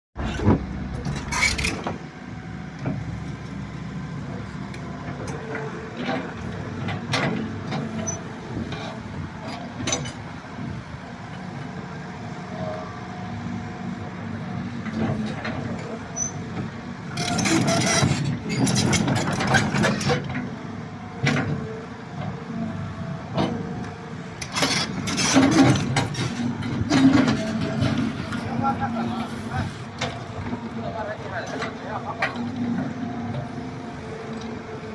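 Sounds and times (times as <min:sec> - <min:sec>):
machine clanks and knocks: 0:00.2 - 0:02.0, 0:09.8 - 0:10.3, 0:24.4 - 0:28.5
excavator diesel engine running: 0:00.2 - 0:34.9.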